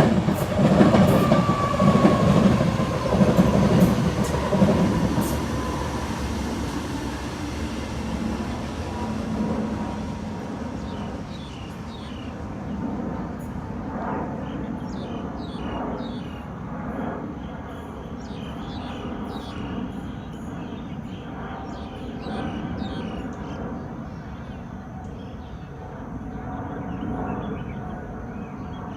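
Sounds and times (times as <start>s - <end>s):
train rumbling on track: 0.0s - 16.4s.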